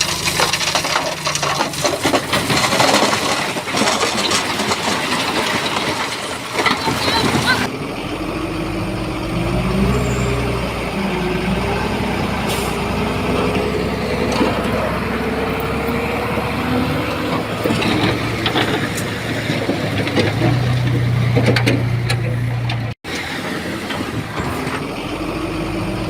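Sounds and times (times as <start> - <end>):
metal clanks and knocks: 0.0 - 7.7, 13.2 - 15.5, 17.2 - 23.0
diesel machinery engine drone: 6.8 - 26.0.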